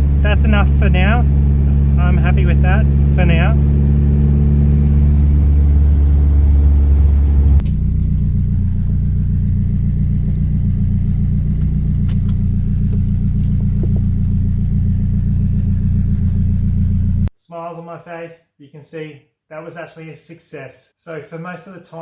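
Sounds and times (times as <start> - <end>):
car engine idling: 0.0 - 17.3.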